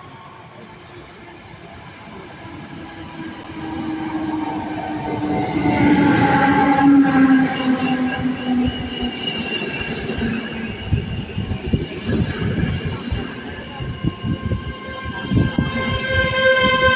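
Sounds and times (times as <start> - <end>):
train coaches rolling on rails: 0.1 - 16.9.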